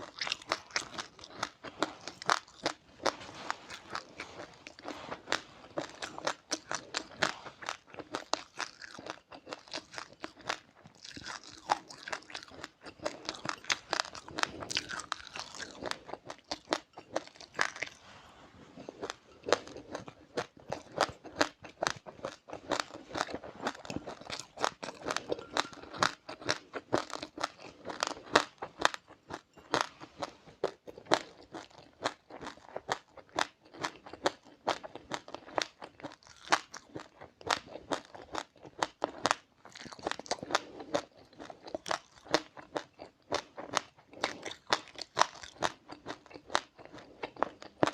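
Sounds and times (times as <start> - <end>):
person chewing crunchy seeds: 0.0 - 18.0, 18.6 - 47.9.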